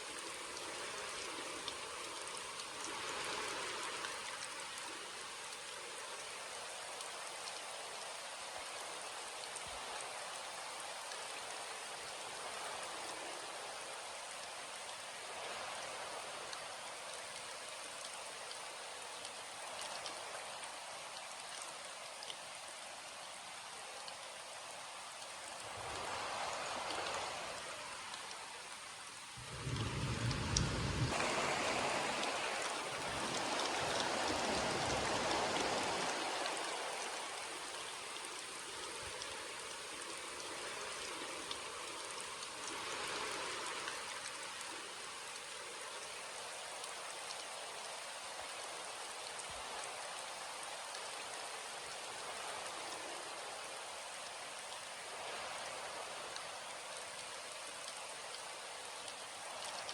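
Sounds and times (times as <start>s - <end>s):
heavy rain falling: 25.5s - 44.7s.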